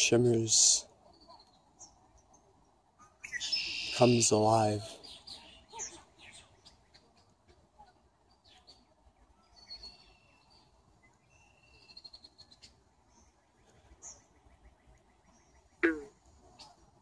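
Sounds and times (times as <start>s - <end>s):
songbird chirps and whistles: 3.0s - 4.2s, 8.3s - 16.8s.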